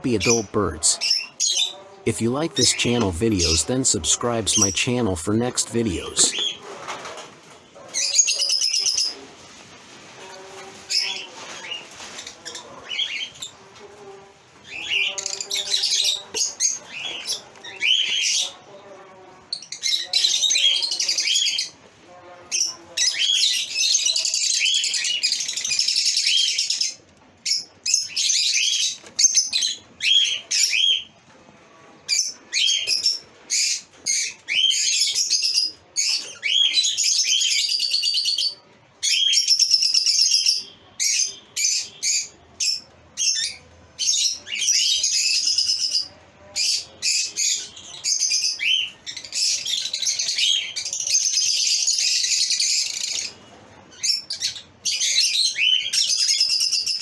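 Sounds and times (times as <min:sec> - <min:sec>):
lovebirds chirping: 0:00.0 - 0:06.8.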